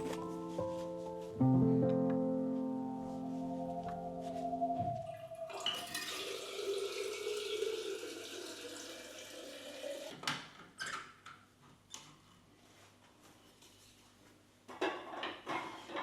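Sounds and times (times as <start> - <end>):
tap water filling a container: 5.5 - 10.2.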